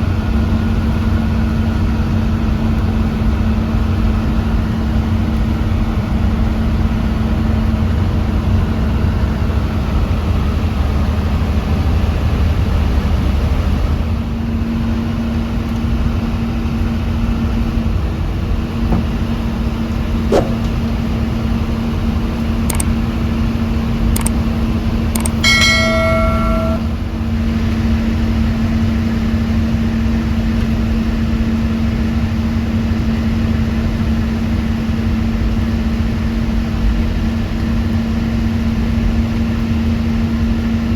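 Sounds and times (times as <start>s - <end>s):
bus engine hum: 16.7s - 27.2s
road rumble: 17.7s - 27.0s
clicks and rattles: 24.2s - 24.4s, 25.2s - 26.9s
short pitched tone: 25.2s - 27.0s.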